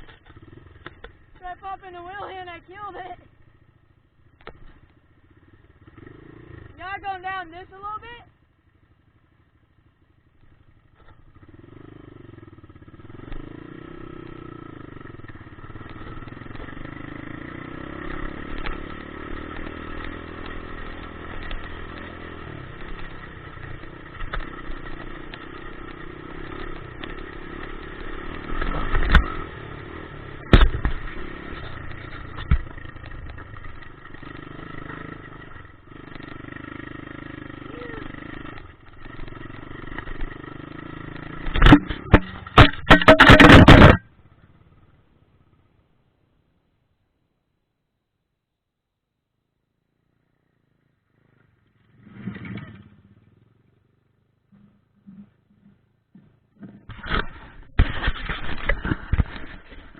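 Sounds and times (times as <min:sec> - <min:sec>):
dirt bike engine running: 0:00.0 - 0:45.8, 0:50.0 - 0:59.9
sharp loud knocks: 0:41.5 - 0:44.0.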